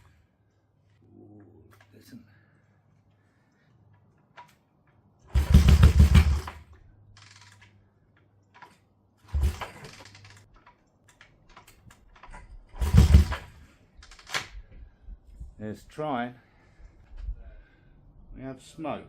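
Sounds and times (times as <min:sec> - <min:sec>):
motorcycle engine being kick-started: 0:05.3 - 0:06.6, 0:09.3 - 0:10.8, 0:11.5 - 0:14.5.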